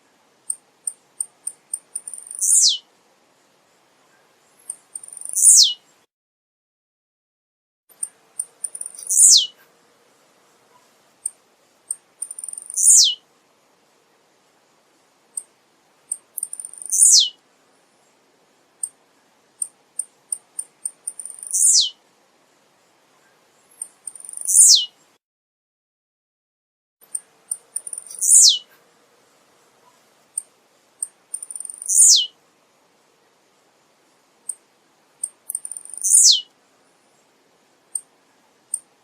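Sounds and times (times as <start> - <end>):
bird singing short song: 0.5 - 2.9, 4.1 - 6.0, 7.9 - 9.6, 10.7 - 13.2, 16.1 - 17.4, 19.6 - 22.0, 23.2 - 25.1, 27.0 - 28.7, 29.8 - 32.4, 35.2 - 36.5.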